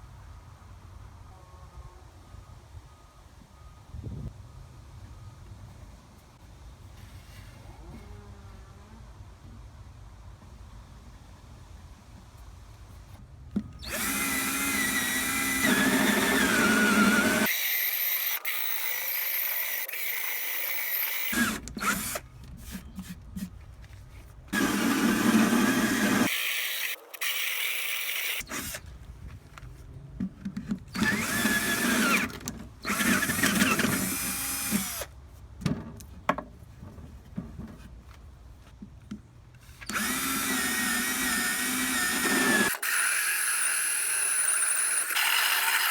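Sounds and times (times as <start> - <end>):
electric power tool motor whining: 13.8 - 22.2, 24.5 - 28.8, 30.9 - 35.1, 39.9 - 45.9.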